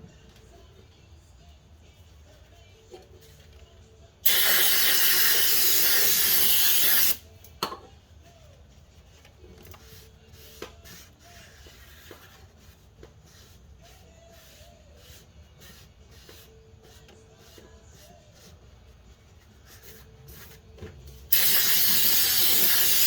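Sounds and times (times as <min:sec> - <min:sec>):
aerosol spray can hissing: 0:04.2 - 0:07.2, 0:21.3 - 0:23.0.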